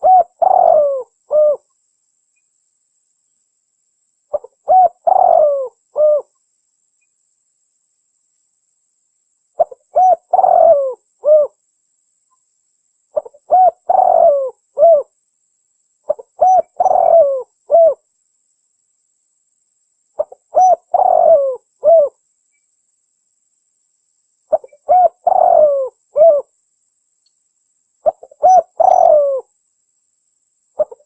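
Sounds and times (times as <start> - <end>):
dove cooing: 0.0 - 1.7, 4.3 - 6.3, 9.6 - 11.6, 13.2 - 15.1, 16.1 - 18.0, 20.2 - 22.2, 24.5 - 26.5, 28.0 - 29.5, 30.8 - 31.0.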